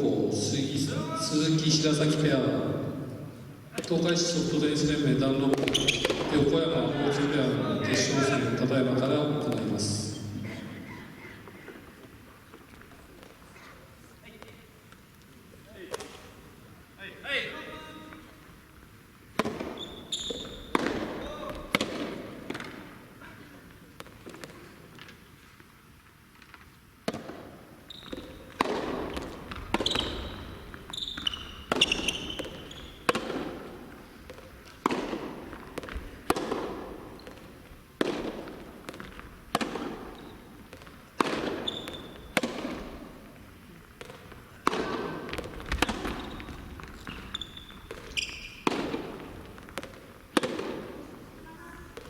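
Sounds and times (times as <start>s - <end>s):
balls bouncing on court: 0.8s - 13.7s, 15.7s - 16.3s, 19.3s - 25.2s, 26.4s - 52.0s
shoes squeaking on court floor: 2.6s - 16.4s, 19.4s - 25.4s, 26.4s - 52.0s
tennis balls struck by rackets: 4.9s - 9.8s, 19.3s - 23.0s, 24.0s - 25.2s, 26.4s - 52.0s.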